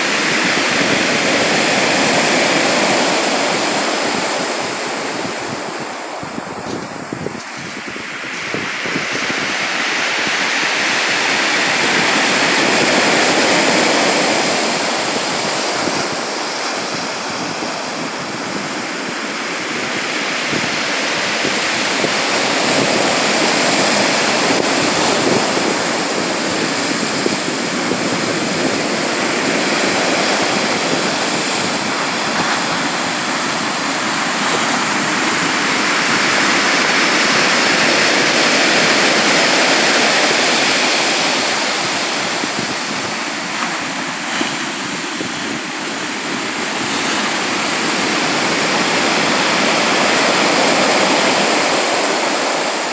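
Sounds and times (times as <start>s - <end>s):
sea waves breaking ashore: 0.0s - 52.9s
wind on microphone: 0.0s - 52.9s.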